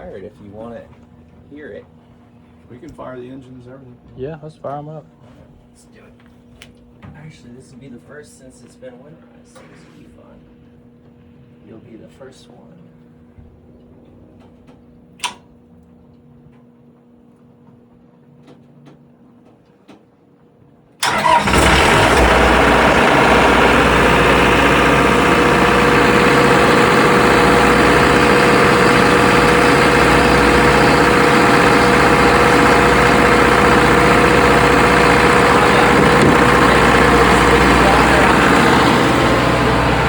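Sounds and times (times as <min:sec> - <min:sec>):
boat engine starting and running: 0:21.0 - 0:40.0.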